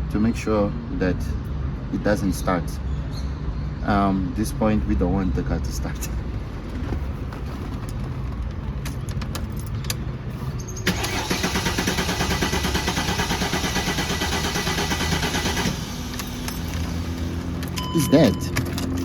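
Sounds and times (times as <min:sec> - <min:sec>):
car engine cranking: 0:05.8 - 0:19.0.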